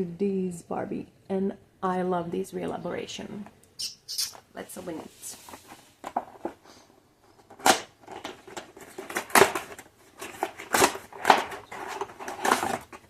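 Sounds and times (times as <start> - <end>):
packaging rustling and ripping: 7.4 - 13.0.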